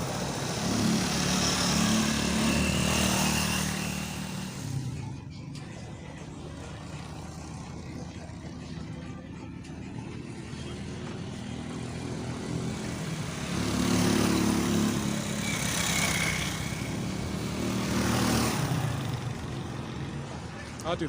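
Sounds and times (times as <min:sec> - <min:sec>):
vehicle driving past: 0:10.9 - 0:20.2.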